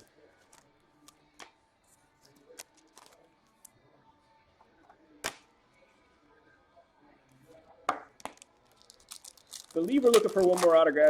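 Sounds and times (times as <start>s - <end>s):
cards being flipped: 9.8s - 10.9s.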